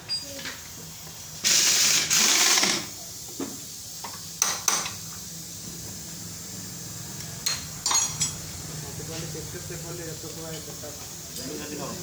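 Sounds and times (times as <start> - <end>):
metal tools clinking: 7.8 - 8.4.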